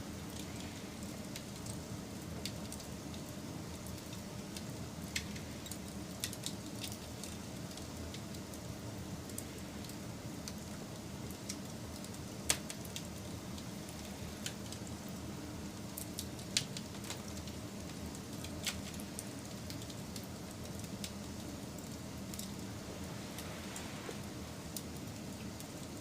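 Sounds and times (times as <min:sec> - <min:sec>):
logs crackling and popping: 0:00.0 - 0:15.2, 0:15.8 - 0:26.0
fire low rumble: 0:00.0 - 0:26.0.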